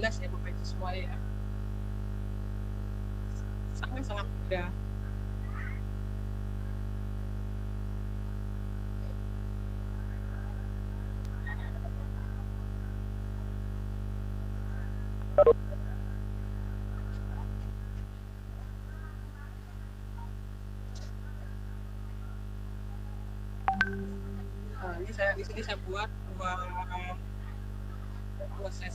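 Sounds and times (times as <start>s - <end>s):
electrical mains hum: 0.0s - 28.9s
loud blip: 23.7s - 25.0s.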